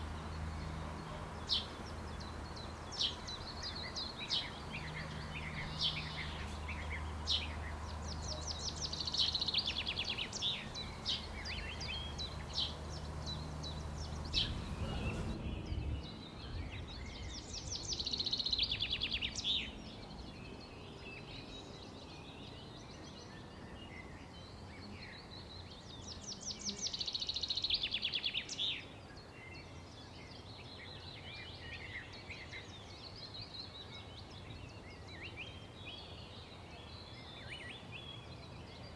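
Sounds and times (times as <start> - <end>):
low steady hum: 0.0 - 15.4
songbirds chirping and trilling: 0.0 - 15.4.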